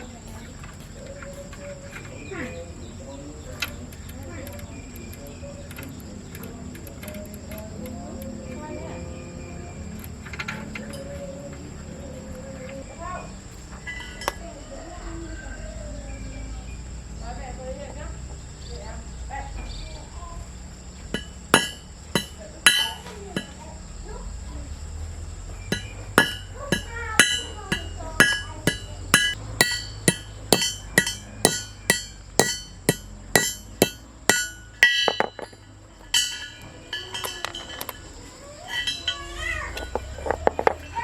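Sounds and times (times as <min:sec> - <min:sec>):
hammer striking metal ringing: 0:21.1 - 0:23.6, 0:25.7 - 0:37.7.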